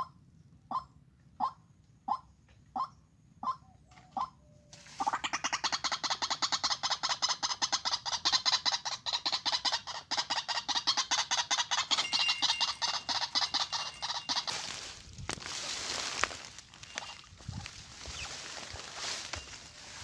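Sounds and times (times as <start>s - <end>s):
waterhen calling harsh repeated notes: 5.0s - 15.0s.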